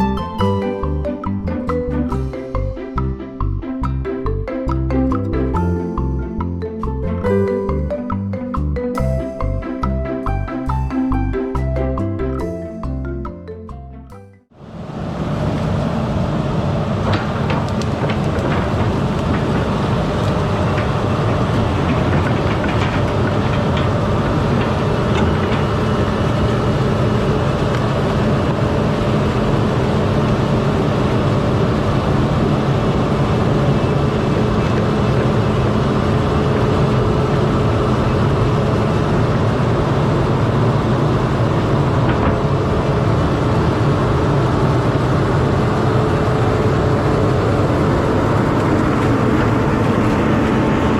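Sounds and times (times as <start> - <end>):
knocks and clicks: 0.0 - 14.4
diesel engine running: 0.0 - 50.9.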